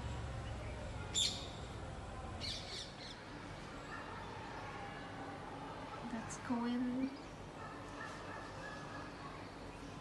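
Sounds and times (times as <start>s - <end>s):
bird chirping: 0.4s - 1.7s, 2.4s - 3.2s.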